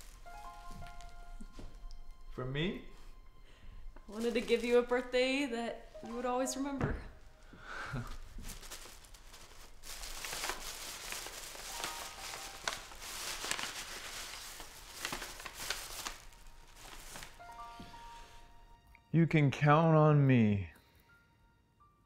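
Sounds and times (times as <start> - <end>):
paper crinkling and rustling: 0.0 - 1.9, 4.1 - 5.4, 7.2 - 18.1
paper tearing: 8.2 - 17.4.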